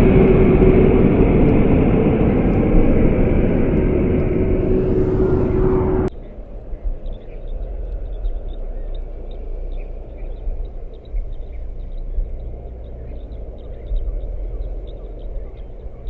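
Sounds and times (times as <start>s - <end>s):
jet engine whine: 0.0s - 16.0s
low rumble: 0.0s - 16.0s
faint chirps: 4.3s - 16.0s.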